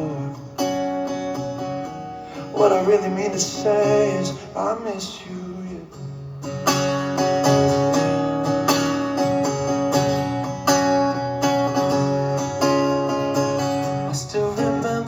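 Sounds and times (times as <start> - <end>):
acoustic guitar strumming: 0.0 - 15.0
person singing: 2.4 - 6.0, 13.4 - 15.0.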